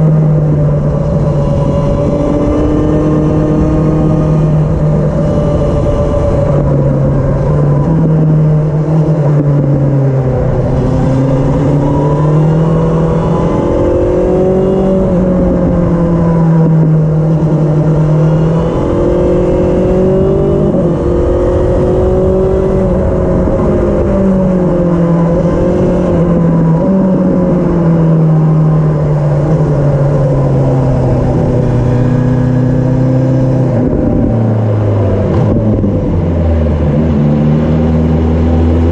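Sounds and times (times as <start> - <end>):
motorcycle engine rising and falling: 0.0 - 38.9.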